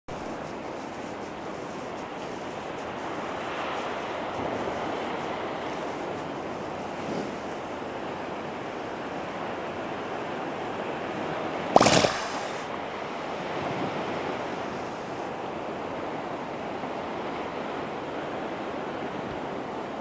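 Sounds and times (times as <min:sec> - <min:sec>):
ocean surf: 0:00.1 - 0:20.0
loud sharp sound: 0:11.8 - 0:12.7.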